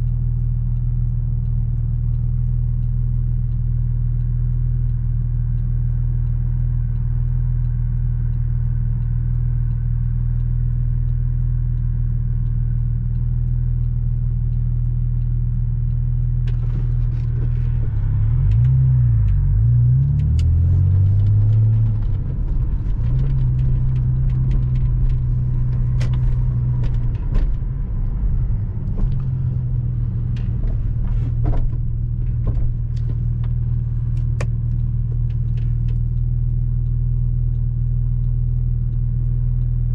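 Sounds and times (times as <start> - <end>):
car engine droning: 0.0 - 39.9
sharp clicks: 0.0 - 39.9.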